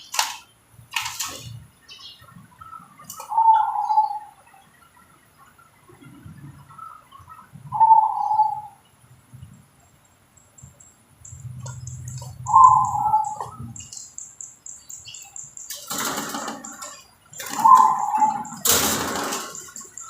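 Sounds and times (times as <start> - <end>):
dove cooing: 2.7 - 4.4, 7.6 - 8.8, 11.6 - 13.9, 15.8 - 20.0.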